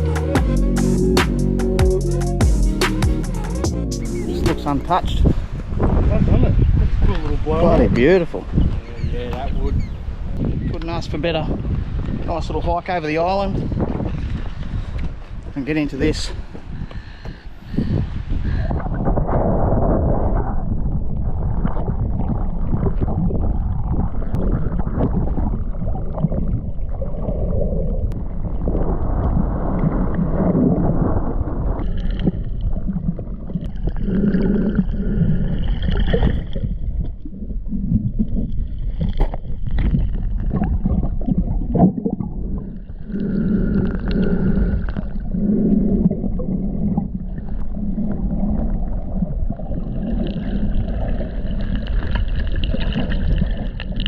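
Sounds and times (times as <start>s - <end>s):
gurgling hums: 0.0s - 54.0s
muffled underwater rushing and sloshing: 4.3s - 54.0s.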